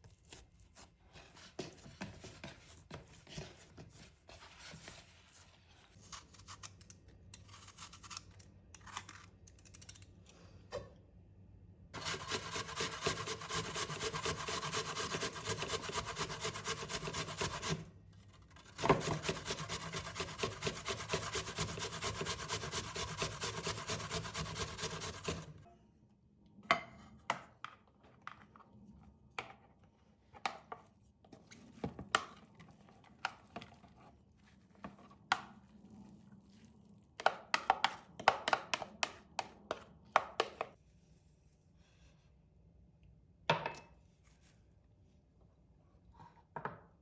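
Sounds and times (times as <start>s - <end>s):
rapid rasping scraping strokes: 12.0s - 17.8s, 18.8s - 25.6s.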